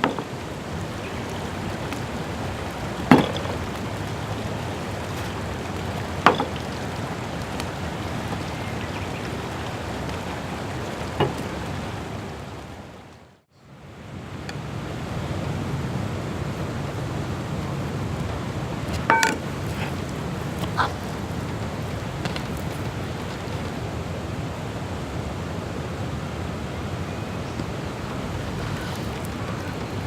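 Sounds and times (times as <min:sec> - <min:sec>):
campfire crackling: 0:14.6 - 0:24.0.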